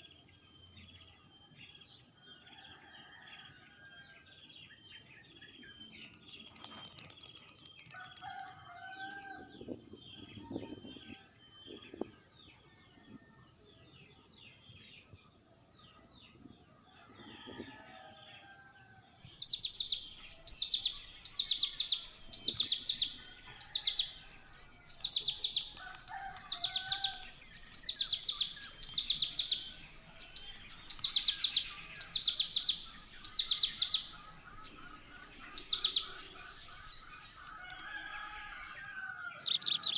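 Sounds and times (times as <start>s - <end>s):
high insect drone: 0.0s - 39.9s
faint rooster crows: 2.2s - 4.5s, 7.8s - 12.1s, 16.8s - 19.3s, 22.4s - 27.6s, 34.9s - 39.9s
small bird chirping: 24.9s - 37.9s.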